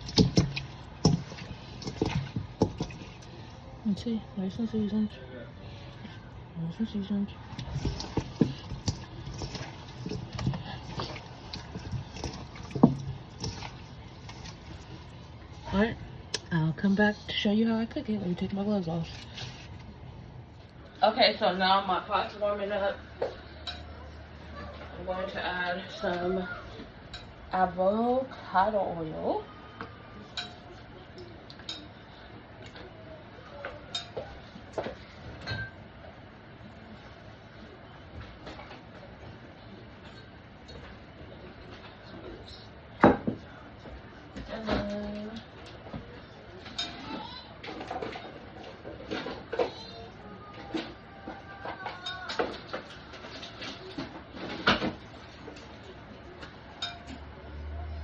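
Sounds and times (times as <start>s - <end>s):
kitchen items clinking: 0.0s - 3.4s, 7.4s - 16.0s, 44.4s - 57.3s.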